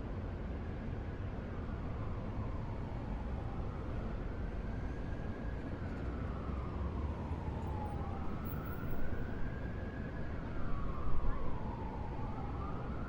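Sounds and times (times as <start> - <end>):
emergency vehicle siren wailing: 1.6 - 13.0.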